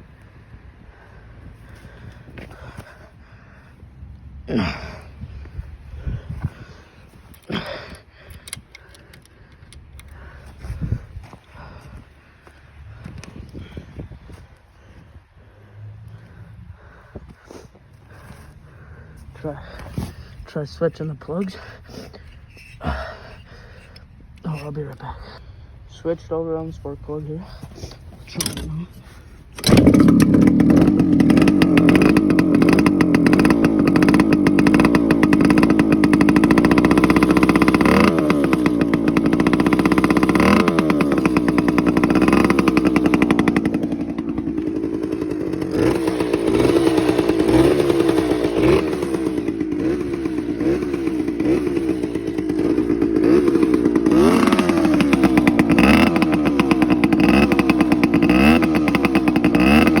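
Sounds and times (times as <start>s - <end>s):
two-stroke engine idling: 0.0s - 60.0s
engine revving: 28.3s - 60.0s.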